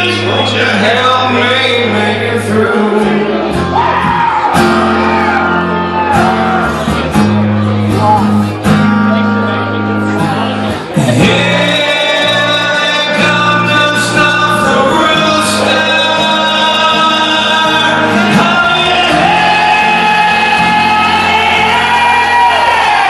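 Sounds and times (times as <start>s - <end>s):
man singing long notes: 0.0s - 4.3s, 11.0s - 23.0s
acoustic guitar: 0.0s - 23.0s.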